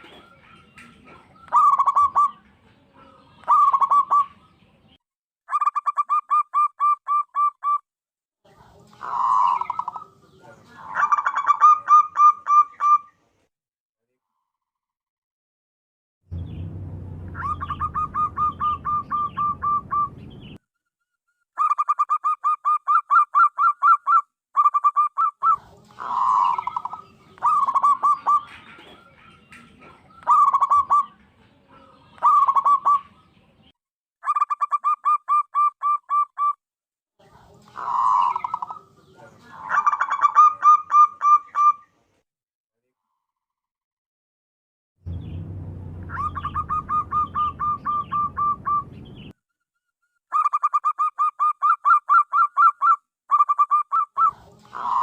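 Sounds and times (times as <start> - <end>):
dove cooing: 0.0 - 4.5, 9.0 - 13.1, 17.4 - 20.2, 24.8 - 33.2, 37.6 - 41.8, 46.1 - 48.9, 53.4 - 55.0
low hum: 16.3 - 20.4, 45.1 - 49.3.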